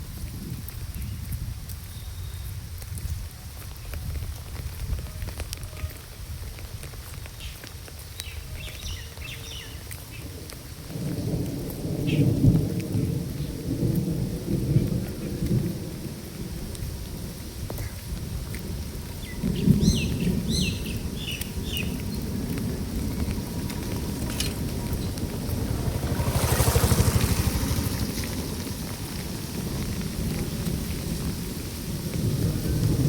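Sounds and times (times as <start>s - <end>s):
rain falling: 0.0s - 33.0s
rolling thunder: 10.4s - 33.0s
bird chirps: 19.2s - 22.0s.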